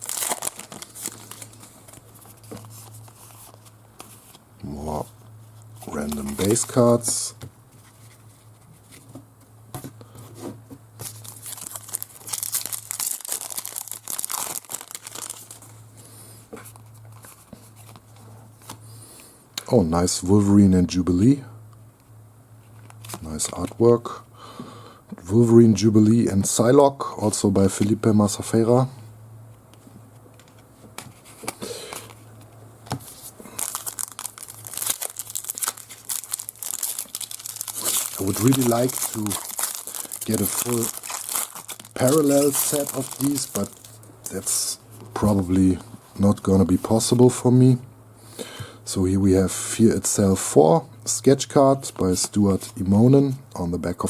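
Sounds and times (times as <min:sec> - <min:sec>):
card wrapper crinkling and tearing: 0:00.0 - 0:03.7, 0:05.8 - 0:07.1, 0:11.0 - 0:15.7, 0:33.0 - 0:44.0.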